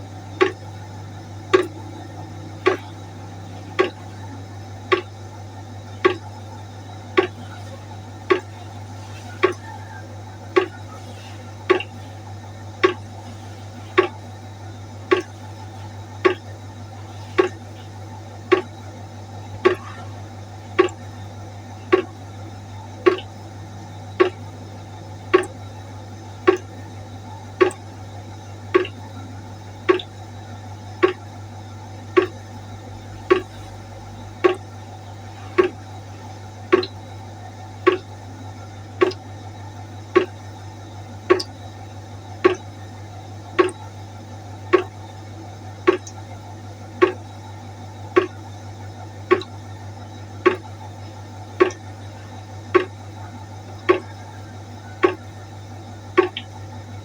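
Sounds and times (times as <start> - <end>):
low hum: 0.0 - 28.0
water drops plinking into a pot: 0.4 - 4.2, 4.9 - 5.2, 6.0 - 6.4, 7.0 - 9.8, 10.5 - 10.9, 11.6 - 12.0, 12.8 - 13.2, 14.0 - 14.3, 15.1 - 16.6, 17.4 - 17.7, 18.5 - 18.8, 19.6 - 20.0, 20.8 - 21.1, 21.9 - 22.2, 23.1 - 24.5, 25.3 - 25.6, 26.5 - 26.7, 27.6 - 27.9, 28.7 - 29.1, 29.9 - 30.2, 31.0 - 31.3, 32.2 - 32.4, 33.2 - 33.8, 34.4 - 34.7, 35.6 - 36.0, 36.7 - 37.2, 37.9 - 38.2, 39.0 - 39.2, 40.2 - 40.4, 41.3 - 41.6, 42.4 - 42.8, 43.6 - 43.9, 44.7 - 45.0, 45.9 - 46.2, 47.0 - 47.2, 48.2 - 48.4, 49.3 - 49.6, 50.4 - 50.8, 51.6 - 52.0, 52.8 - 53.1, 53.8 - 54.2, 55.0 - 55.3, 56.2 - 56.5.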